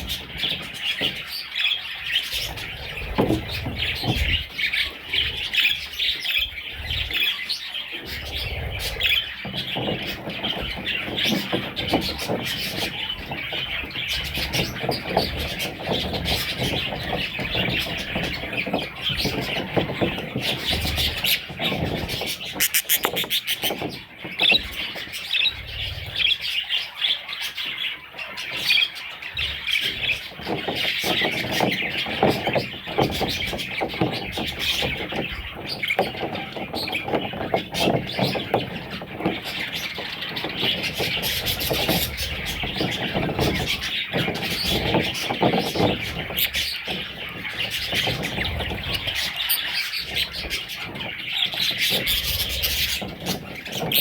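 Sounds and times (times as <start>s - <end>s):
budgerigars chattering and chirping: 0.0s - 54.0s.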